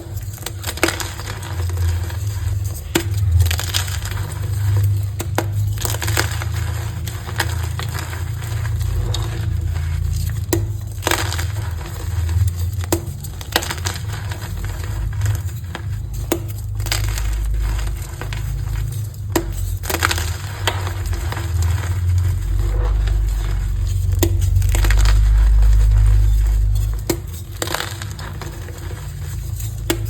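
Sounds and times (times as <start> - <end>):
chalk being crushed by hand: 0.0 - 30.0
low steady rumble: 0.0 - 30.0.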